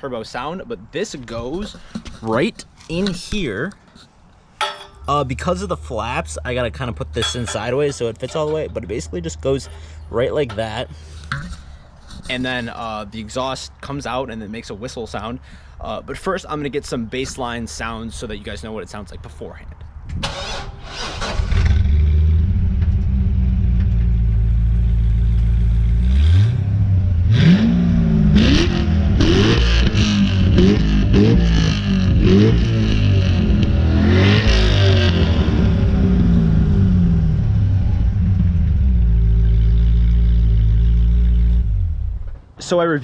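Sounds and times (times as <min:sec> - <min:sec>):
car engine idling and revving: 0:20.4 - 0:42.4.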